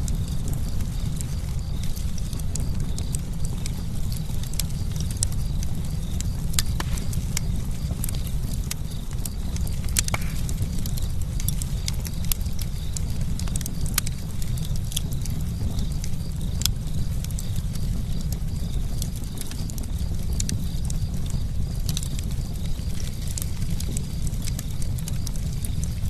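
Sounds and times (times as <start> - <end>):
campfire crackling and popping: 0.0 - 26.0
low fire rumble: 0.0 - 26.0.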